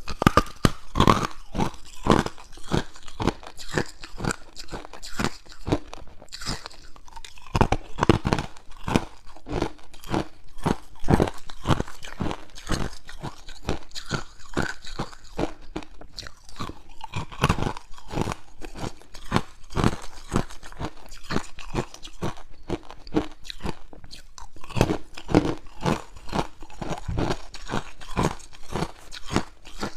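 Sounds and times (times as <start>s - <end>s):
ice crunching while chewed: 0.0s - 29.9s.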